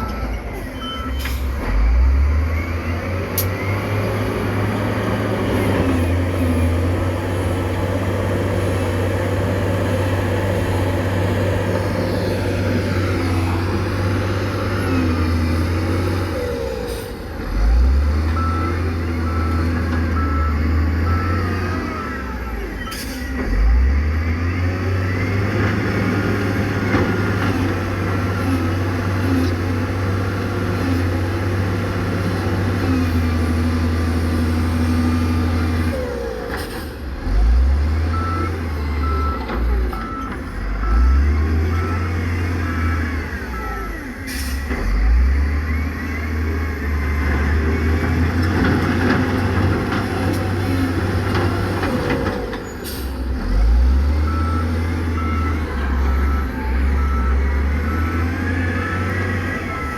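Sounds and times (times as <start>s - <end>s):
reversing alarm beeping: 0.0s - 4.4s, 17.6s - 27.3s, 38.0s - 48.0s, 52.0s - 59.9s
diesel machinery engine revving: 0.0s - 59.9s.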